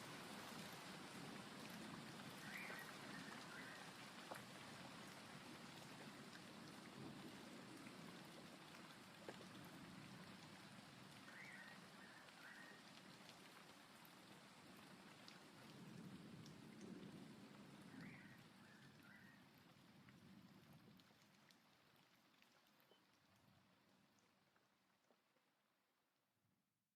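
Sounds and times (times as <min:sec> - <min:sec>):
faint steady rain: 0:00.0 - 0:26.4
raindrop ticks: 0:00.3 - 0:25.5.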